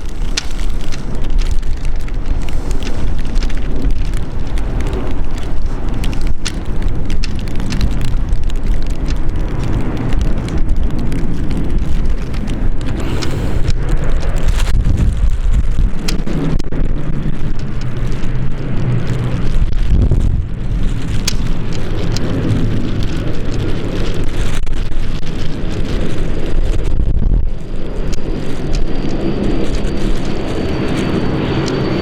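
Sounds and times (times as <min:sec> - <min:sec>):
crackles: 0:00.0 - 0:32.0
wind buffeting microphone: 0:00.0 - 0:32.0
turboprop engines droning: 0:27.7 - 0:32.0.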